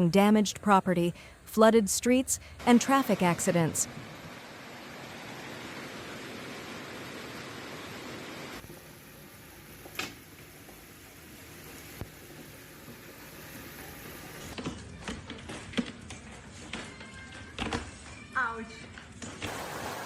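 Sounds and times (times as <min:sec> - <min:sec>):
hiss of heavy hail: 0:19.5 - 0:20.0.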